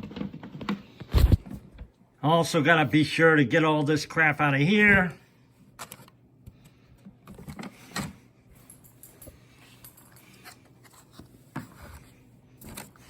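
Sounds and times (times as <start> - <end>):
plastic rustling and scraping: 10.3 - 13.0.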